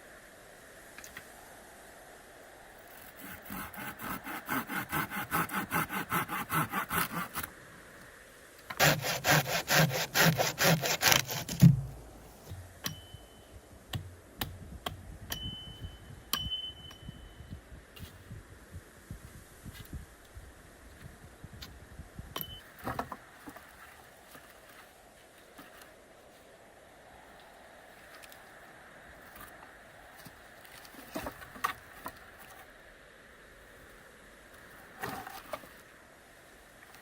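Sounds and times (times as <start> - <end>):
hand saw cutting wood: 3.0 - 7.5, 8.7 - 11.9
wood piece dropping with thud: 11.5 - 12.7, 22.8 - 23.6.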